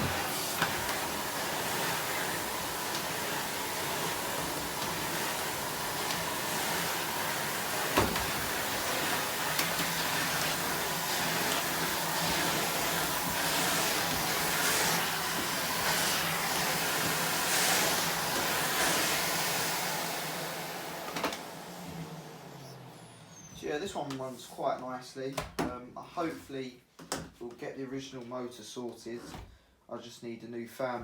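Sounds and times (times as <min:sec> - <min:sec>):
vacuum cleaner running: 0:00.0 - 0:23.9.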